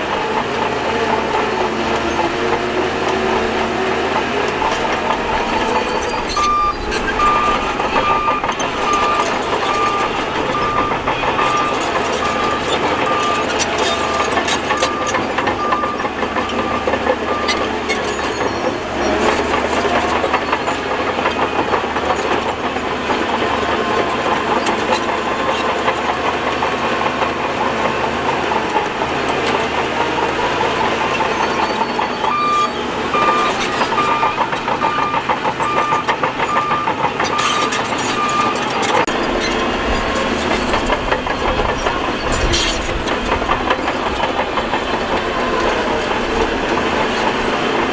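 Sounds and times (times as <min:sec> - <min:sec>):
bulldozer engine under load: 0:00.0 - 0:47.9
clanking of tracks and stone: 0:00.0 - 0:47.9
reversing alarm beeping: 0:04.5 - 0:18.8, 0:30.9 - 0:39.1.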